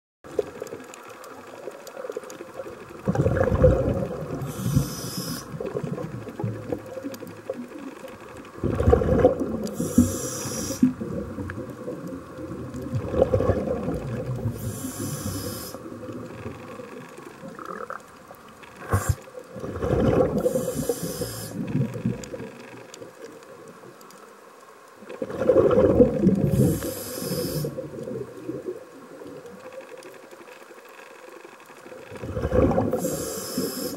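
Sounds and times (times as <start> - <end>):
exhaled bubbles rushing: 3.0 - 4.8, 8.6 - 10.1, 10.8 - 14.7, 18.8 - 22.6, 25.1 - 28.8, 32.1 - 33.2
regulator hiss: 4.4 - 5.8, 9.7 - 11.0, 14.4 - 17.0, 18.8 - 19.4, 20.4 - 21.8, 26.4 - 27.9, 33.0 - 33.9.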